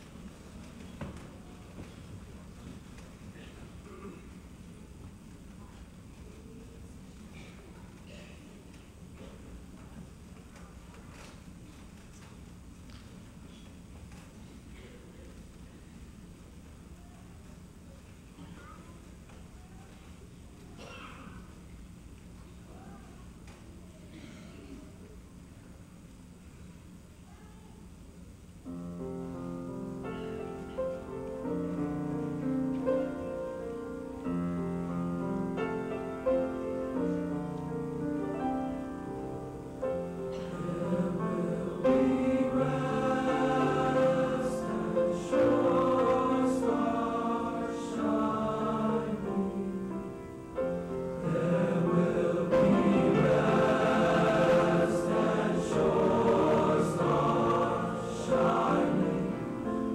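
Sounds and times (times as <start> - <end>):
school choir singing: 39.9 - 59.9.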